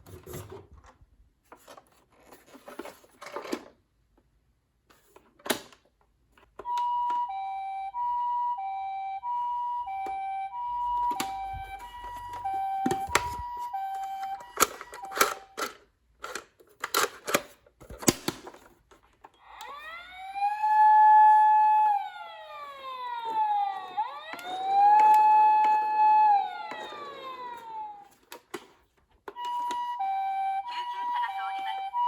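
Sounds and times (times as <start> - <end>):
toy electronic siren: 6.6 - 15.7, 19.4 - 28.3, 29.3 - 32.0.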